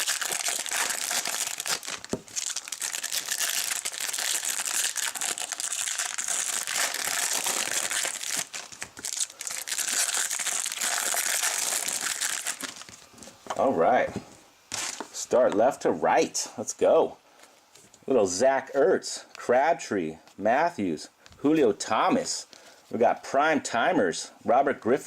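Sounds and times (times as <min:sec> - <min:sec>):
wrapper tearing and crinkling: 0:00.0 - 0:13.1.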